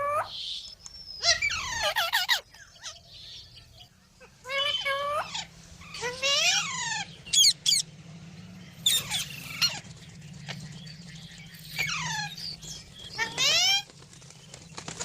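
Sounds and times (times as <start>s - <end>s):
parrot screeching calls: 1.2s - 3.0s, 4.4s - 7.8s, 8.8s - 9.8s.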